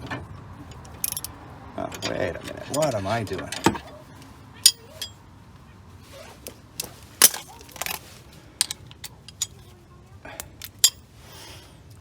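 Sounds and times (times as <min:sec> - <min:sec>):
metallic clinks of hand tools: 0:00.7 - 0:04.0, 0:04.6 - 0:05.2, 0:08.6 - 0:09.7, 0:10.6 - 0:11.1.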